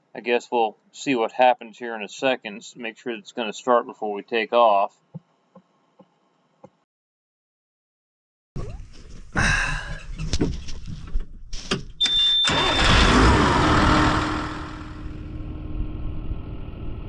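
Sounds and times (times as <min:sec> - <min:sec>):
diesel tractor engine starting: 0:12.0 - 0:17.0.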